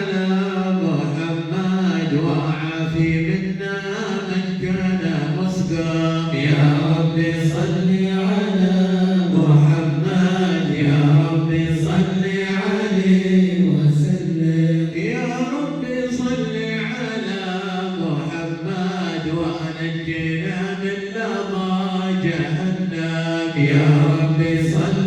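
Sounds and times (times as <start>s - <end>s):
group devotional chanting: 0.0s - 25.0s.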